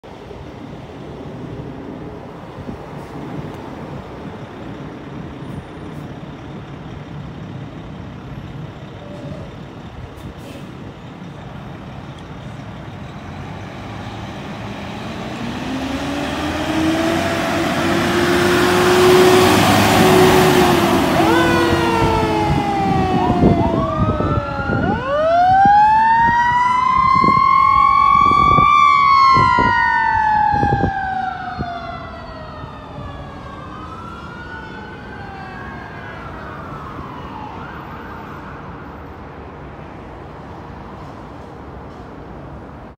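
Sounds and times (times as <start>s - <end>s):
fire engine and road noise: 0.0s - 42.9s
siren wailing: 14.5s - 39.0s.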